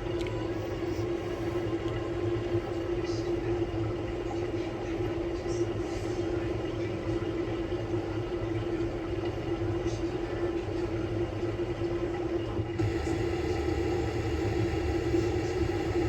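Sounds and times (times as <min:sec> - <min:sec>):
washing machine humming: 0:00.0 - 0:16.0
motor whine: 0:12.5 - 0:16.0.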